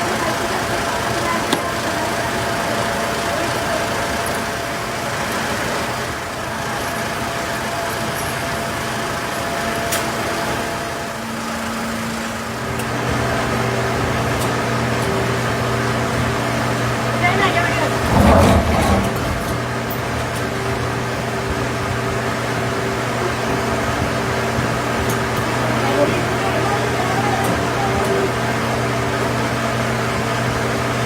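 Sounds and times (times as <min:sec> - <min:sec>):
thin high machine whine: 0:00.0 - 0:31.0
deep motor hum: 0:10.8 - 0:31.0.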